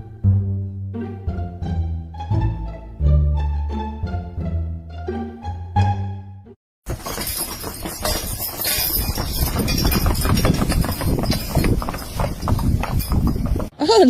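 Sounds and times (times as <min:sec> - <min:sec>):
orchestral music: 0:00.0 - 0:06.6
horse hooves clopping: 0:06.8 - 0:14.0.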